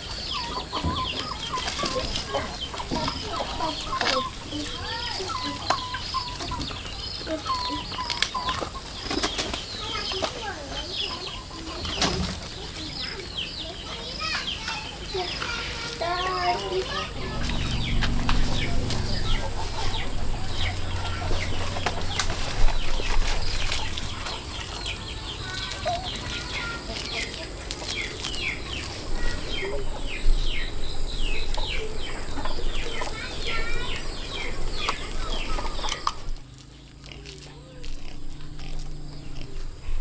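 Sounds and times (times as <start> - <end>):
fowl chirping: 16.1 - 36.3
low rumble: 16.9 - 24.4.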